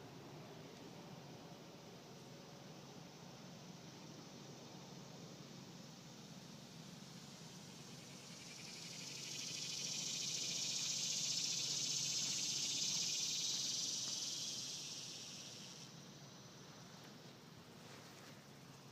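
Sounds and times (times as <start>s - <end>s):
cicada buzzing: 6.4s - 16.8s.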